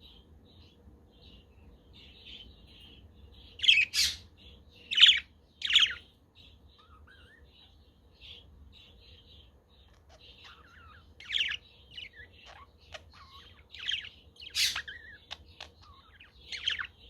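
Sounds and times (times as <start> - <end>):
budgerigars chattering: 3.5 - 6.0, 9.8 - 17.0.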